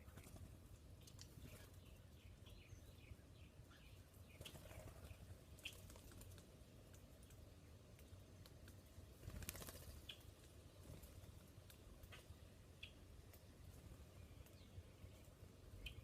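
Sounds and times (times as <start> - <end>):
faint bird chirps: 0.0 - 6.2, 13.8 - 16.0.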